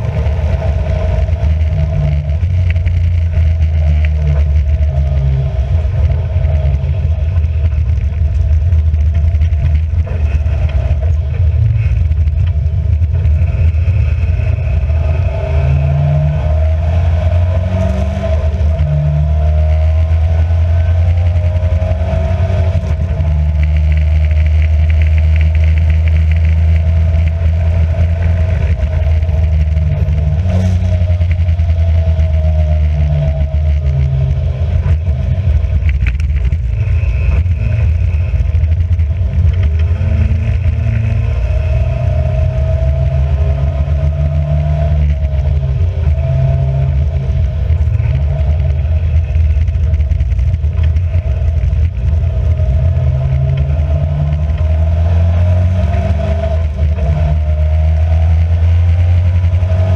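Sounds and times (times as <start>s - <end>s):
racing car engine revving: 0.0s - 59.9s.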